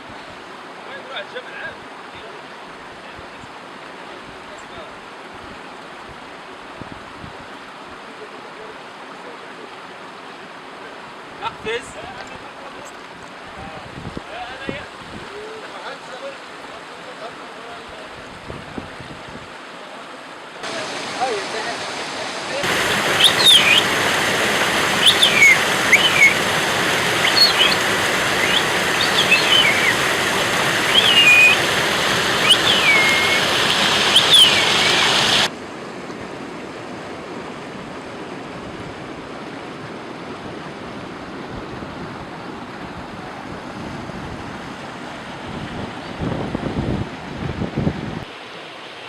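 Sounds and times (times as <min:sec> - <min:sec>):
rushing water: 0:00.0 - 0:49.0
high bird chirps: 0:22.9 - 0:23.9, 0:25.0 - 0:26.4, 0:27.2 - 0:30.1, 0:30.8 - 0:31.7, 0:32.4 - 0:35.5.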